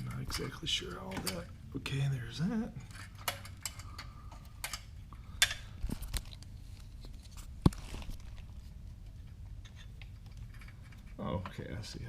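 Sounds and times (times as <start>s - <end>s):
metallic clicks and knocks of tools: 2.8s - 5.6s.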